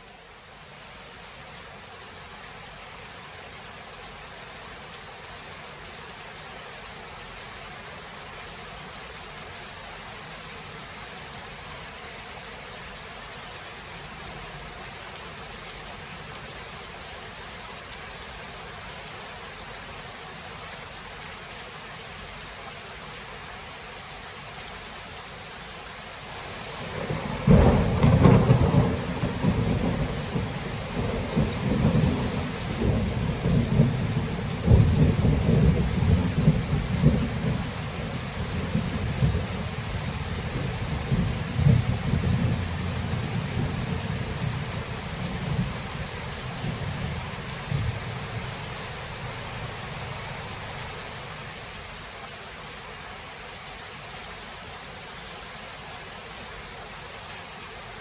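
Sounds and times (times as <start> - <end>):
steady rain: 0.0 - 58.0
thunder clap and rumble: 26.4 - 51.0.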